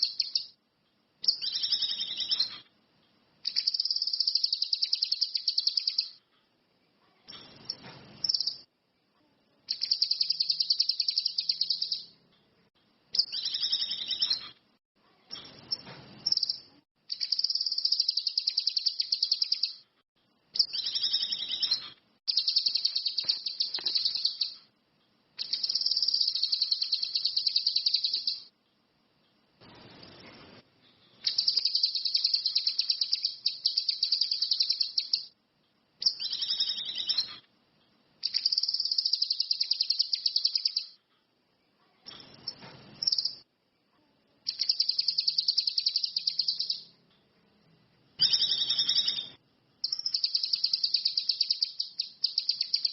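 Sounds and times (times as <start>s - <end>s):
bird singing rapid high trills: 0.0s - 0.6s, 1.2s - 2.6s, 3.5s - 6.2s, 9.7s - 12.1s, 13.2s - 14.6s, 15.3s - 19.8s, 20.6s - 24.6s, 25.4s - 28.5s, 31.2s - 35.4s, 36.0s - 37.4s, 38.2s - 41.0s, 42.2s - 43.4s, 44.5s - 46.9s, 48.2s - 52.9s.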